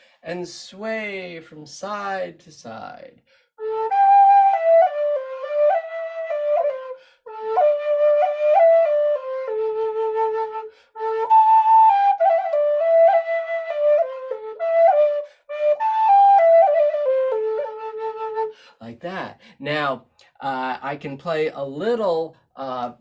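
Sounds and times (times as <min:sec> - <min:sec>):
flute playing slow melody: 0:03.6 - 0:18.6.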